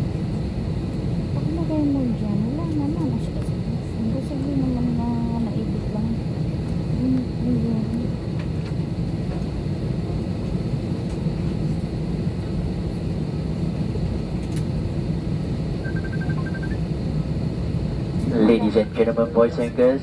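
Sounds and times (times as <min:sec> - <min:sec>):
aircraft cabin rumble: 0:00.0 - 0:20.0
constant hum: 0:00.0 - 0:20.0
short high beeps: 0:15.8 - 0:16.8.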